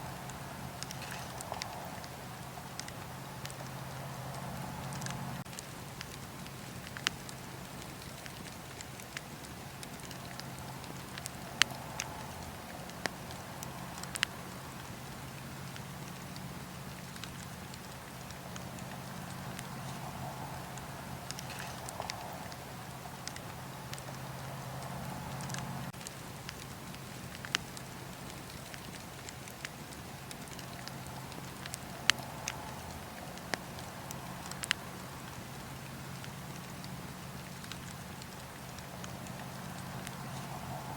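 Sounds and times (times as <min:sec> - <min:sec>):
fire crackling and popping: 0:00.0 - 0:40.9
fire rumbling and hissing: 0:00.0 - 0:40.9.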